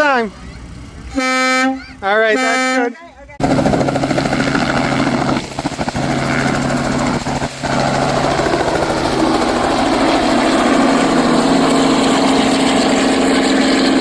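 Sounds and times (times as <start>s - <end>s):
large vehicle engine idling: 0.0s - 2.4s.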